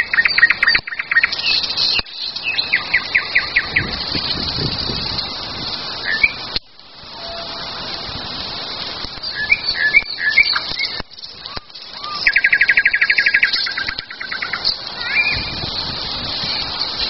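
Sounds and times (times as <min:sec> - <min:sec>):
bird trill: 0:00.0 - 0:04.0, 0:09.3 - 0:15.5
songbirds chirping: 0:00.0 - 0:06.8, 0:09.1 - 0:17.0.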